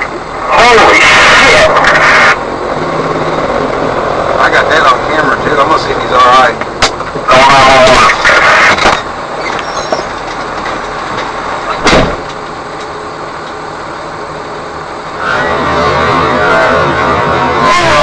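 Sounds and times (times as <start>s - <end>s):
vehicle rumble: 0.0s - 18.0s
loud bang: 11.8s - 12.2s.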